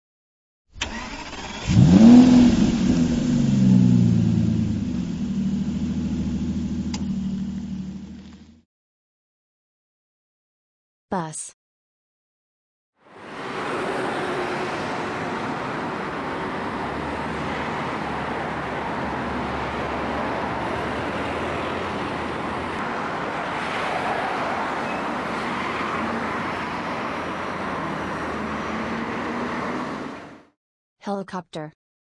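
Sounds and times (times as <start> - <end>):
bus engine running: 1.7 - 8.6, 13.2 - 23.6, 24.6 - 30.5
street traffic hiss: 13.0 - 30.4.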